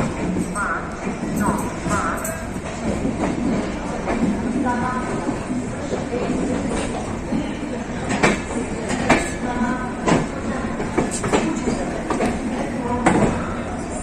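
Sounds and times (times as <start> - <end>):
train rolling rumble: 0.0 - 14.0.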